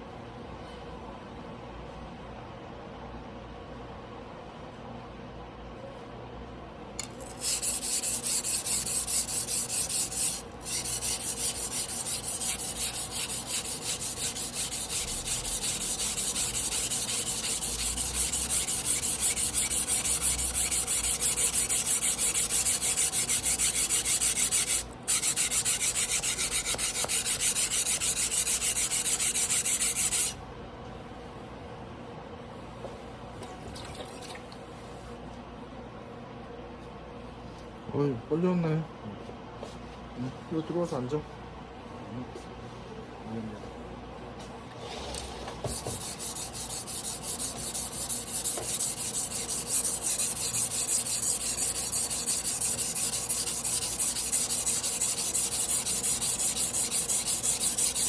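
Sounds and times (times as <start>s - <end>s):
knife scraping on whetstone: 7.0s - 30.4s, 44.9s - 58.0s.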